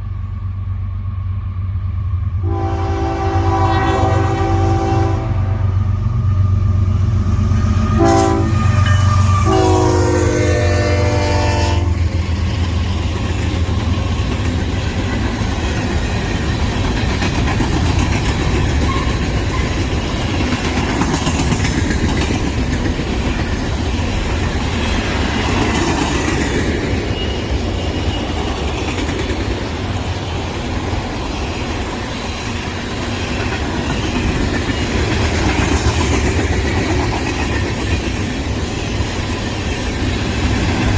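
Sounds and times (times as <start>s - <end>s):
train horn blasts: 2.4s - 5.7s, 7.8s - 12.1s
train wheels clattering over rail joints: 12.2s - 40.9s.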